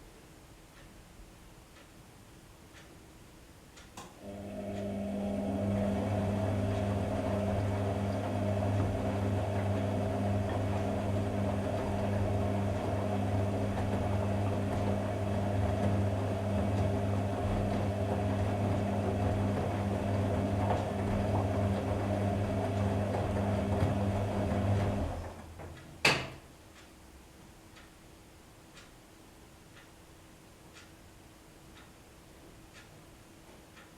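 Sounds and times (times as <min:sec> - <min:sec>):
washing machine pump humming: 0:04.1 - 0:26.5.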